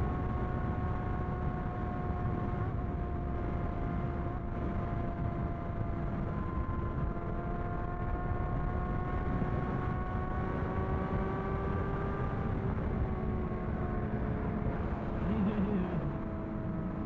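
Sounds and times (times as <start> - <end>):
wind rumble on microphone: 0.0 - 17.0
motorcycle engine cruising: 4.9 - 17.0.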